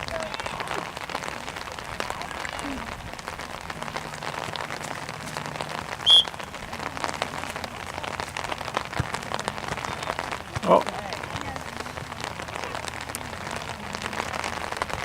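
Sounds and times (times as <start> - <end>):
rain pattering: 0.0 - 15.0
referee's whistle blast: 6.0 - 6.3.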